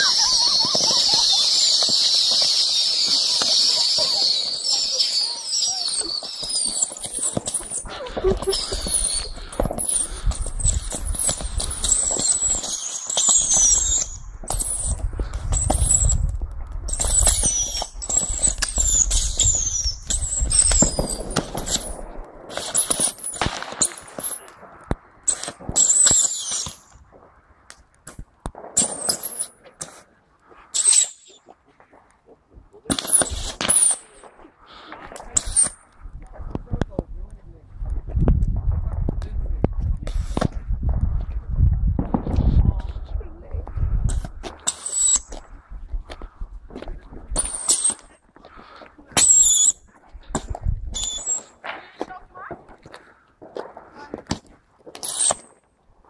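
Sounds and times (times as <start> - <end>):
rockets whistling and fizzing: 0.0 - 32.0, 32.8 - 36.8, 38.0 - 55.7
sharp cracks: 0.0 - 32.2
low rumble: 35.8 - 44.5.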